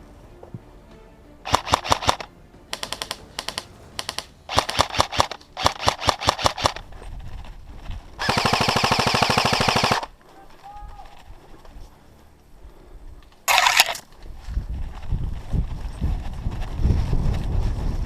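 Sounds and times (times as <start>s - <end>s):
airsoft rifle shots: 1.5s - 6.8s, 8.2s - 10.1s.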